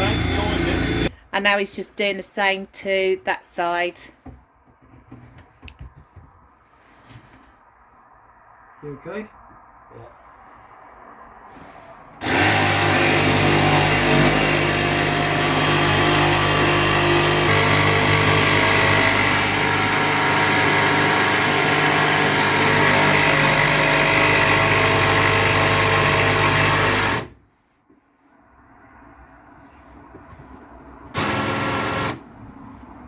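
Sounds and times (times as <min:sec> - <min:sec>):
electric power saw cutting wood: 0:00.0 - 0:01.1, 0:12.2 - 0:27.4, 0:31.2 - 0:32.2.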